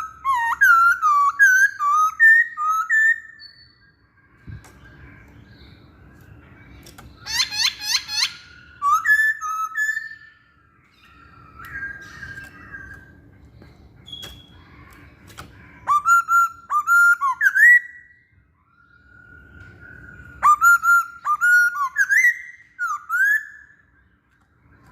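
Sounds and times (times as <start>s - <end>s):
bird singing whistled phrases: 0.0s - 4.0s, 7.2s - 13.2s, 15.8s - 23.9s.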